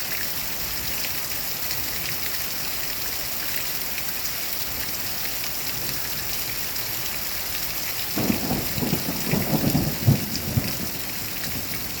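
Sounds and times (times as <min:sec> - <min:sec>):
steady rain: 0:00.0 - 0:12.0
crackling thunder rumble: 0:08.2 - 0:12.0.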